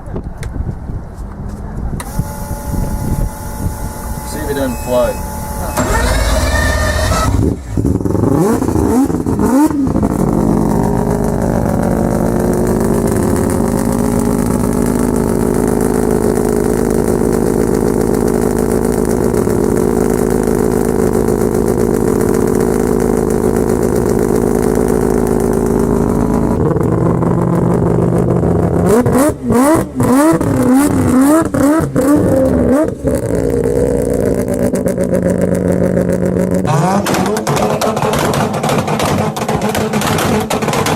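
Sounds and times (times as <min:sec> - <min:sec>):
car engine revving: 0:02.0 - 0:40.9.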